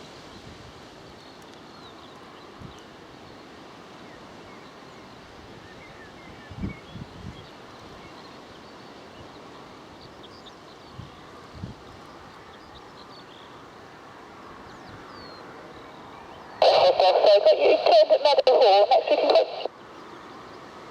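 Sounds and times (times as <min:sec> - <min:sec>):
wind: 0:00.0 - 0:20.9
wind gusts buffeting microphone: 0:06.3 - 0:08.1, 0:10.8 - 0:12.0.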